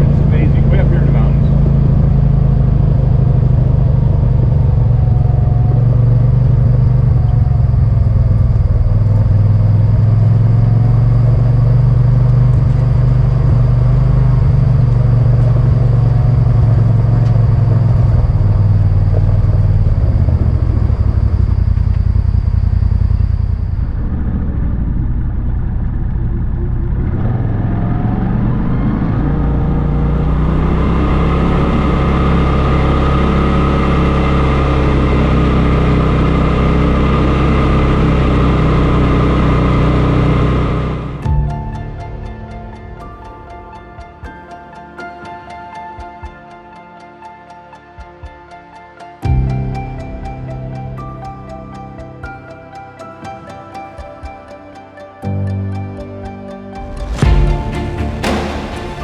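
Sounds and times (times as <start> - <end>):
vehicle engine: 0.0 - 44.0, 56.7 - 59.0
road rumble: 0.0 - 44.3, 56.8 - 59.0.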